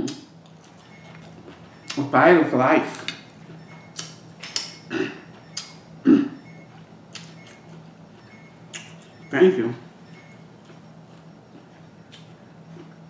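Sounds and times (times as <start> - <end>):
chewing: 0.4 - 2.0, 10.4 - 13.0.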